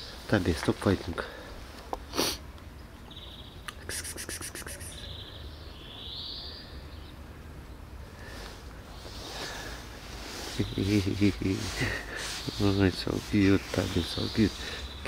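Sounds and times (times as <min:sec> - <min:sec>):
small bird chirping: 0:03.0 - 0:07.2, 0:10.4 - 0:15.0.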